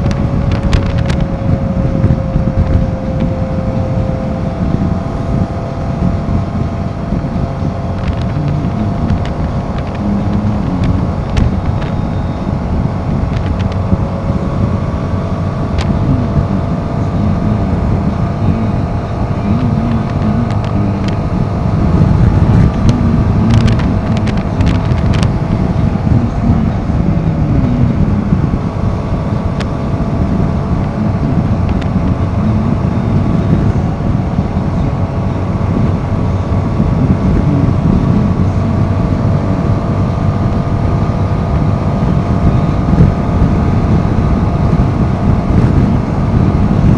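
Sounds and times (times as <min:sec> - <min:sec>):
motorcycle engine running: 0:00.0 - 0:46.9
wind buffeting microphone: 0:00.0 - 0:46.9.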